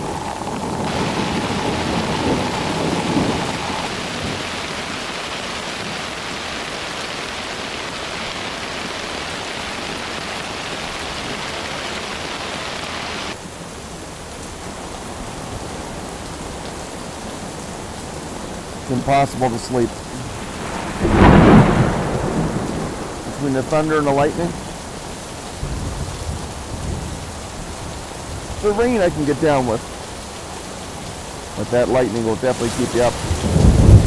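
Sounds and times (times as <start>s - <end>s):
low thunder rumbling: 0.0s - 4.6s, 19.9s - 27.2s
heavy rain pouring: 0.0s - 34.0s.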